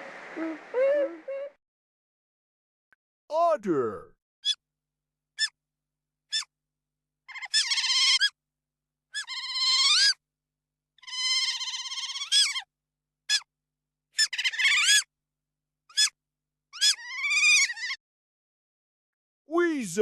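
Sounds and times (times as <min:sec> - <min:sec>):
otter high-pitched calls: 0:06.3 - 0:06.5, 0:07.3 - 0:08.4, 0:09.2 - 0:10.2, 0:11.0 - 0:12.7, 0:14.2 - 0:15.1, 0:15.9 - 0:16.2, 0:16.8 - 0:18.0.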